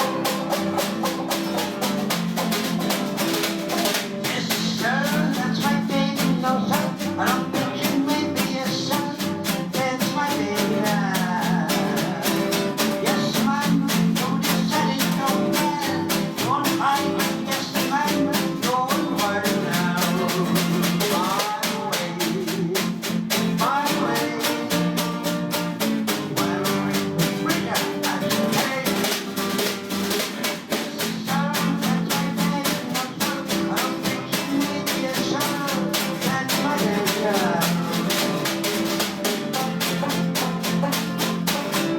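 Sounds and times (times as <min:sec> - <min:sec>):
jazz melody: 0:00.0 - 0:04.3
jazz drum kit beat: 0:00.0 - 0:41.9.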